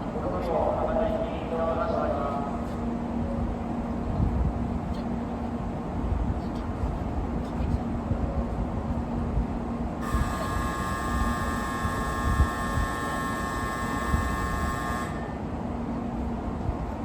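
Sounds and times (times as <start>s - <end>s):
low station rumble: 0.0s - 17.0s
steady departure signal tone: 10.0s - 15.6s.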